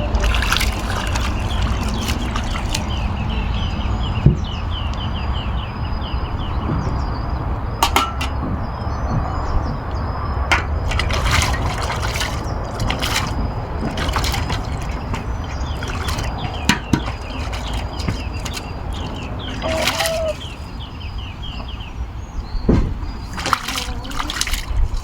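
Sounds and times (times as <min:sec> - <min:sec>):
water splashing and trickling: 0:00.0 - 0:04.8, 0:06.6 - 0:25.0
utensils clinking: 0:00.1 - 0:03.1, 0:07.8 - 0:08.5, 0:10.5 - 0:20.7.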